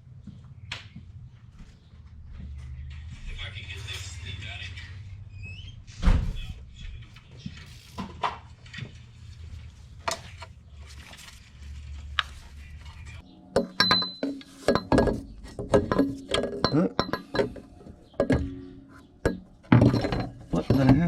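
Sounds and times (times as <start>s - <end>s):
metal tools clinking: 13.6s - 21.0s.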